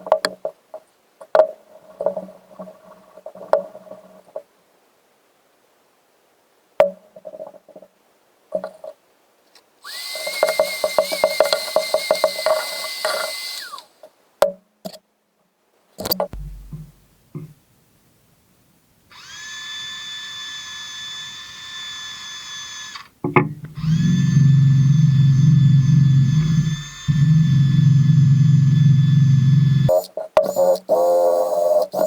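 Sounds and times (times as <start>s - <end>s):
electric power tool whining: 9.9s - 13.9s, 19.2s - 23.1s, 23.8s - 30.0s
scattered knocks: 16.4s - 17.5s.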